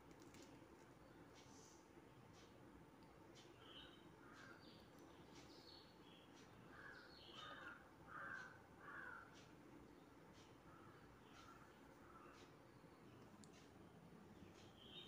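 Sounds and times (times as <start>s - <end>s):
faint bird calls: 3.4s - 9.6s, 10.3s - 13.7s.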